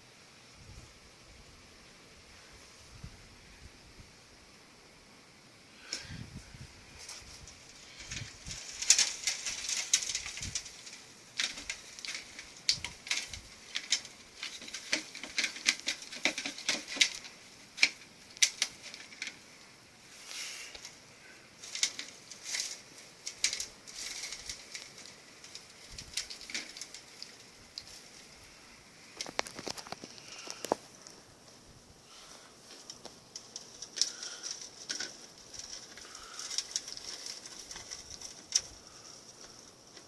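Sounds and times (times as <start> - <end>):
hand rummaging in container: 11.4 - 19.4.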